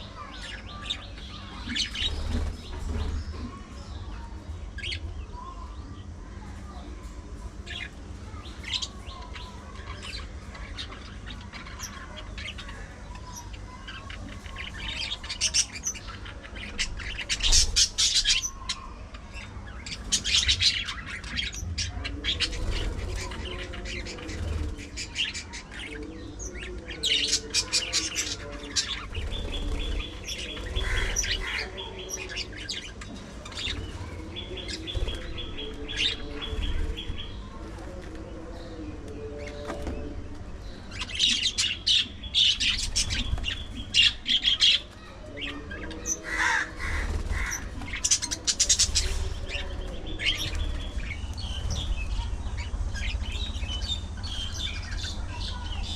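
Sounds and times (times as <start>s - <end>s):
budgerigars chirping and chattering: 0.0s - 6.8s, 7.4s - 55.9s
steady low hum: 0.0s - 55.9s.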